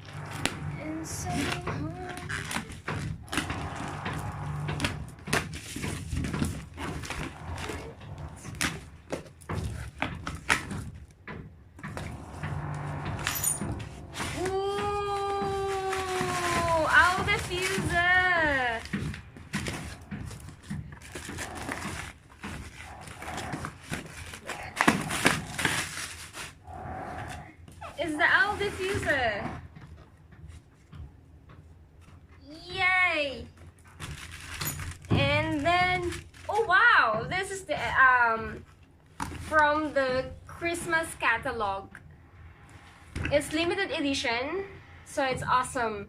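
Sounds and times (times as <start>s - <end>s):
low background hum: 0.0s - 46.0s
packing material rustling: 14.0s - 26.9s, 33.9s - 36.7s.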